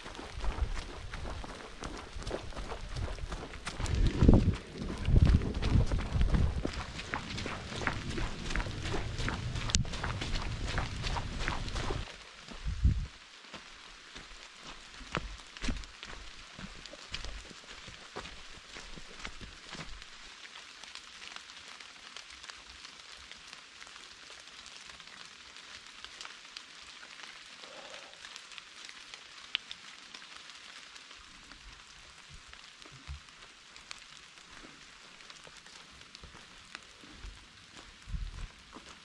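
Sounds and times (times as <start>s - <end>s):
raindrop ticks: 0.0s - 39.0s
steady rain hiss: 0.0s - 39.0s
soft low thumps: 0.2s - 12.0s, 38.0s - 38.6s.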